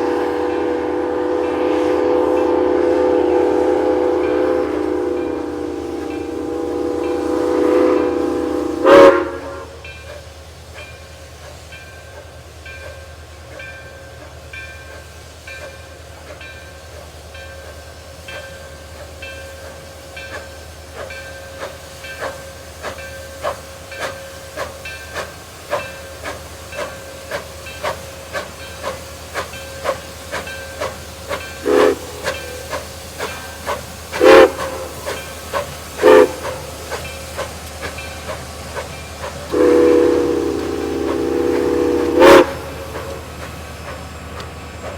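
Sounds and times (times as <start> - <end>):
steam hissing: 0.0 - 44.9
steam locomotive chime whistle: 0.0 - 44.9
locomotive bell ringing: 4.0 - 8.6, 10.8 - 33.7.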